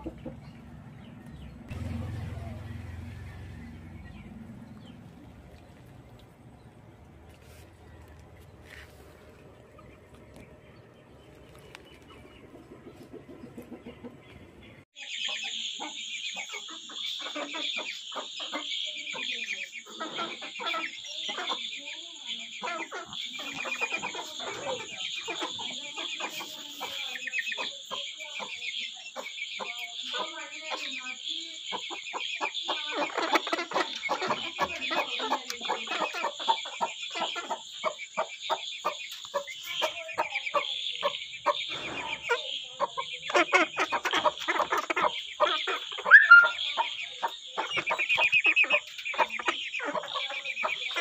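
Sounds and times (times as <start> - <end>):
chickens clucking: 0.0 - 51.0
chicken squawk: 31.7 - 51.0.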